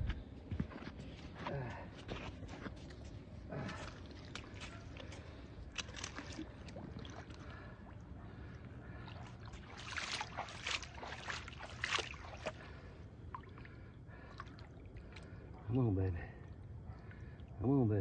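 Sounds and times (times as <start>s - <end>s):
water sloshing and splashing: 2.0s - 15.7s.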